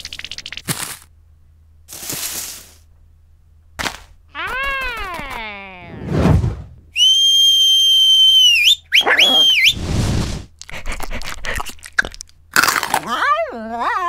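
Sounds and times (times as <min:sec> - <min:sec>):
cartoon whistles: 0:07.0 - 0:09.9.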